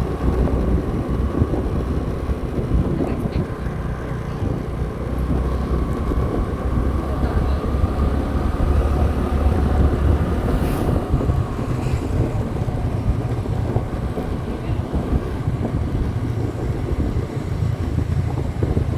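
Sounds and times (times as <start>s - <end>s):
motorcycle engine humming: 0.0s - 18.9s
wind buffeting microphone: 0.0s - 18.9s.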